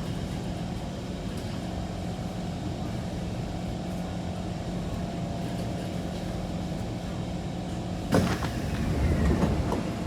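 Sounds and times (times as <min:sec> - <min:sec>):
train wheels rumbling on rail: 0:08.2 - 0:10.0.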